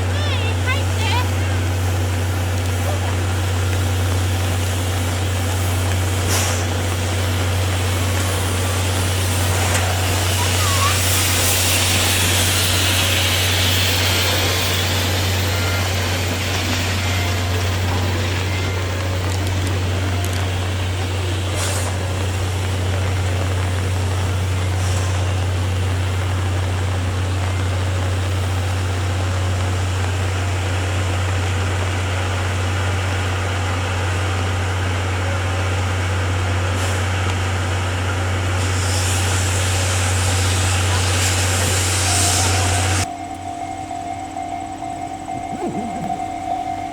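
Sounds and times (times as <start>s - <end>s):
heavy rain hissing: 0.0s - 43.1s
constant low hum: 43.0s - 46.9s.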